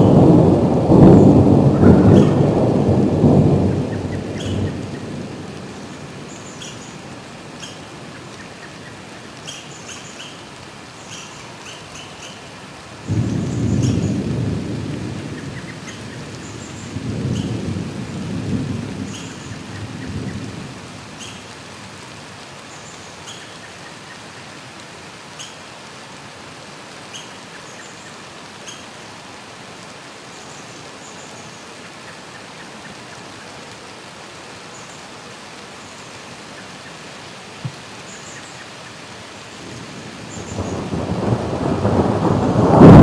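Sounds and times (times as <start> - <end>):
thunder rumbling: 0.0 - 7.9, 13.0 - 21.4, 39.6 - 43.0
rain hissing: 0.0 - 43.0.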